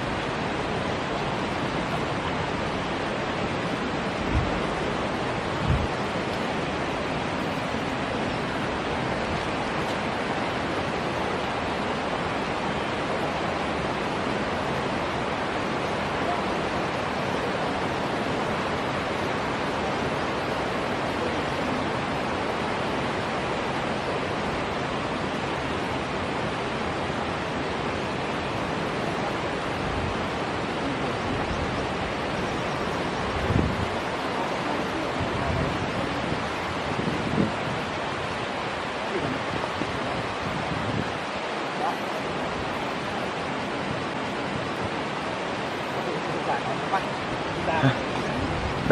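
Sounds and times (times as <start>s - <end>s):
flowing water rushing: 0.0s - 48.9s.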